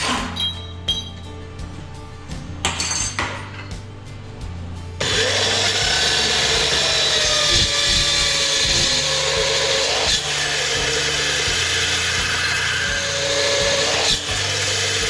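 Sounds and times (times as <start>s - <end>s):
power tool working metal: 5.0s - 15.0s.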